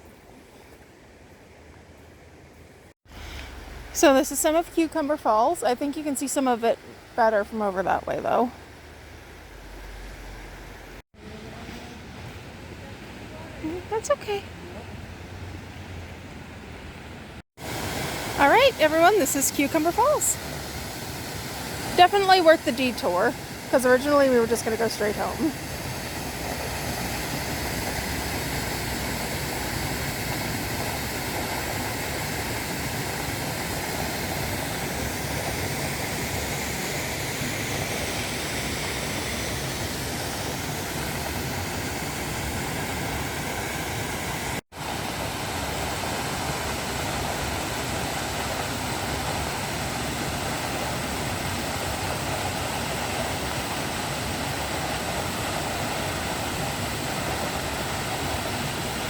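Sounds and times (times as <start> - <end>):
waterfall rushing: 3.1 - 5.7, 17.6 - 59.0.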